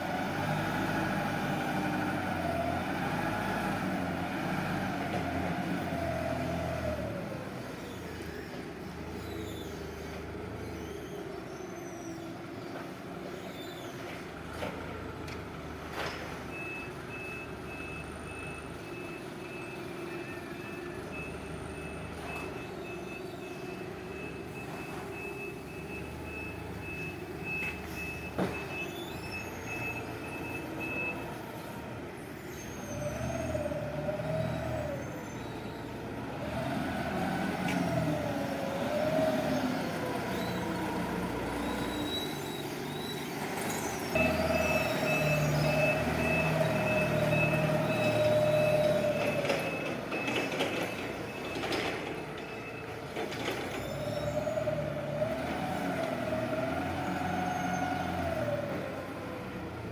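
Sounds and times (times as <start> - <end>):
forklift reversing alarm beeping: 16.5 - 31.7, 37.1 - 55.5.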